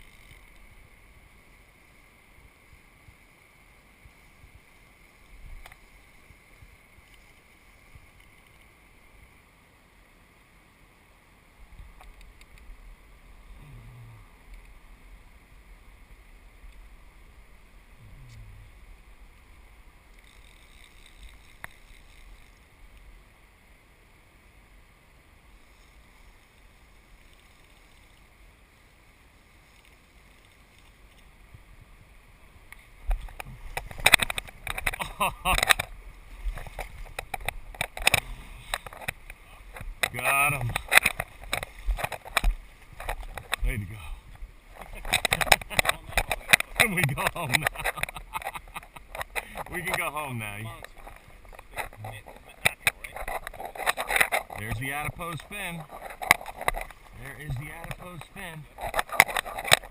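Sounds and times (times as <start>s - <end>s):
flowing river water: 0.0s - 59.9s
wind on microphone: 18.0s - 18.9s.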